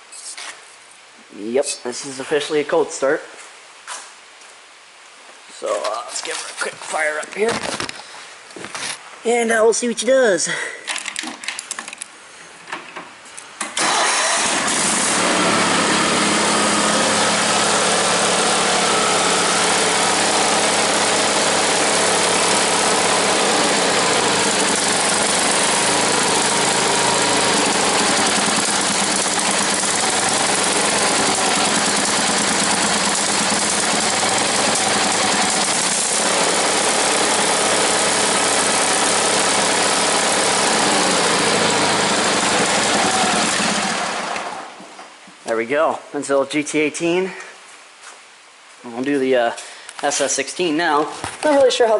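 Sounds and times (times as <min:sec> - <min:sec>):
garden tractor engine starting: 0:13.6 - 0:44.8.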